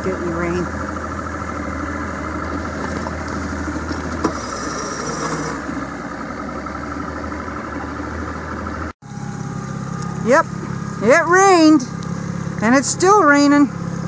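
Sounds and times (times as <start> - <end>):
boat motor running: 0.0 - 14.0.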